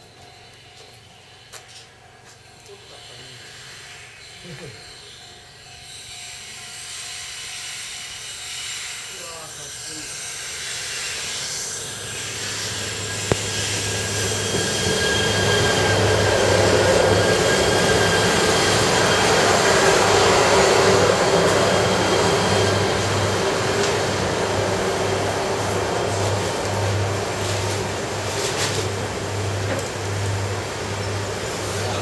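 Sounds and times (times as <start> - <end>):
electric train passing: 0.0 - 32.0
high whine: 10.9 - 32.0.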